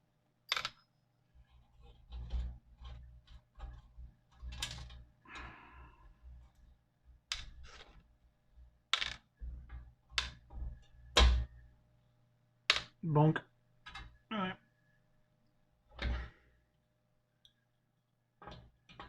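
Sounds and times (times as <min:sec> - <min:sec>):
metal parts clicking and knocking: 0:00.5 - 0:00.8, 0:02.0 - 0:05.0.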